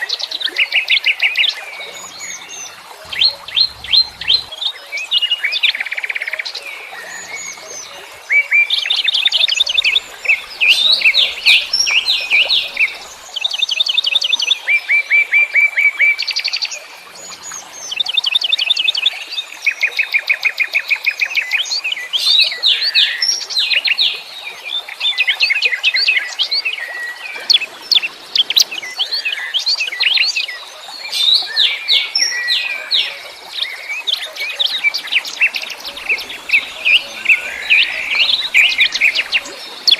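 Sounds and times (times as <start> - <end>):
songbirds trilling: 0.8 - 4.7, 6.6 - 13.5, 32.5 - 39.9.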